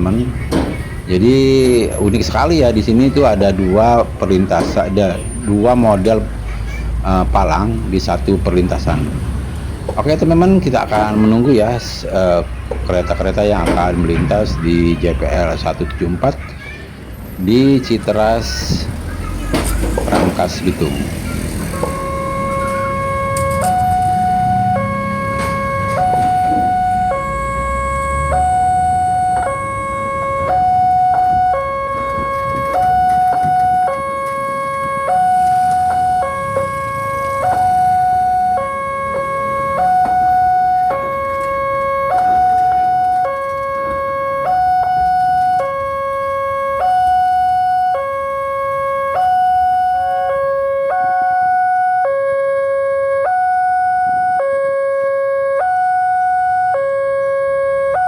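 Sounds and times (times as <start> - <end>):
road traffic rumble: 0.0 - 58.0
level crossing alarm two tones: 20.0 - 58.0.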